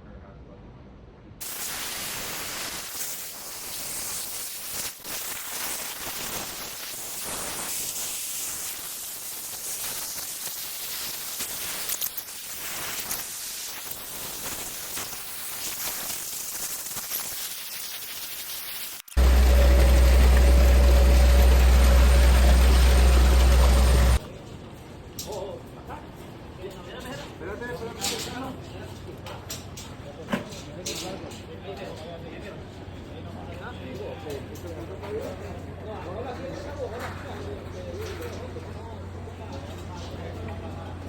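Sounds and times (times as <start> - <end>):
steady rushing hiss: 1.4 - 24.2
low engine drone: 19.1 - 24.2.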